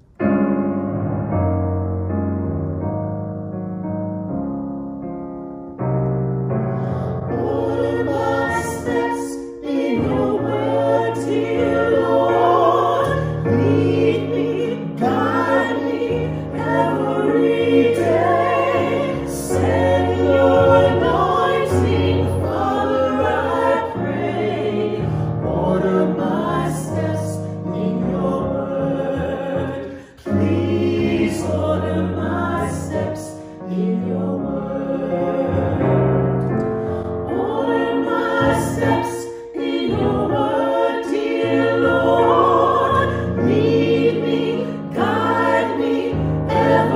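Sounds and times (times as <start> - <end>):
breaths: 6.7 - 7.3, 25.0 - 25.4, 29.9 - 30.2, 36.7 - 37.2
choir singing a hymn: 6.8 - 46.9.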